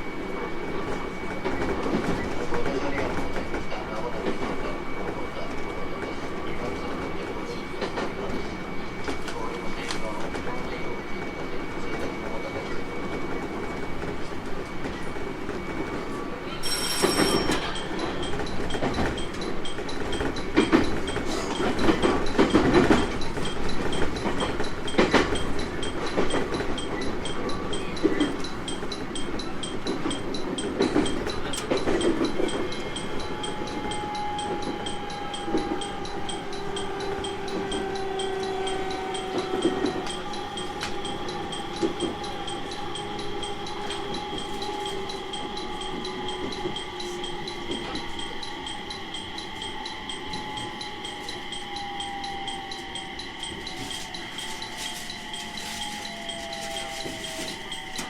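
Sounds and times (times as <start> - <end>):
electric train wheels rumbling: 0.0 - 58.0
high ringing tones: 0.0 - 58.0
train motor whine: 32.2 - 58.0.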